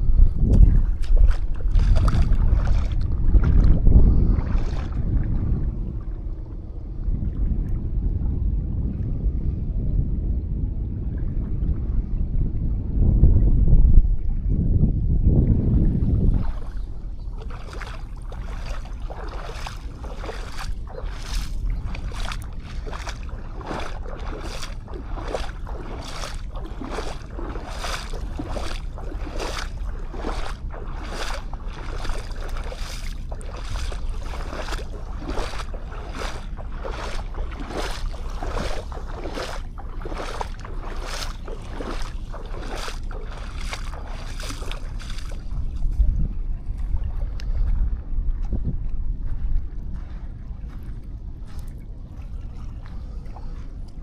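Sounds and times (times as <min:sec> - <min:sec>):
wind rumble on microphone: 0:00.0 - 0:54.0
footsteps crunching on sand: 0:00.8 - 0:03.6, 0:16.5 - 0:46.0.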